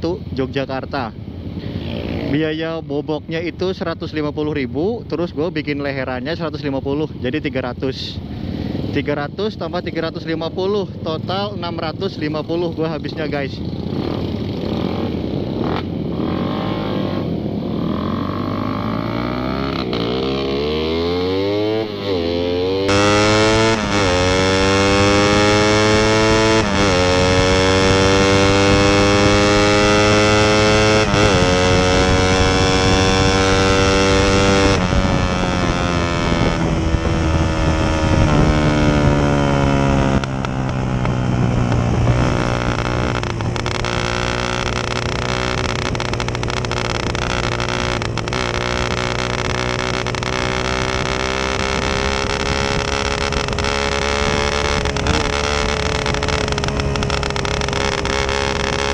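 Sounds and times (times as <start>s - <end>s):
motorcycle engine revving hard: 13.6s - 58.9s.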